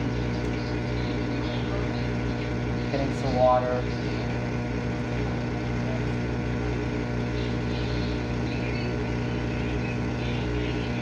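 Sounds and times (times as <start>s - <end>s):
dishwasher pump hum: 0.0s - 11.0s.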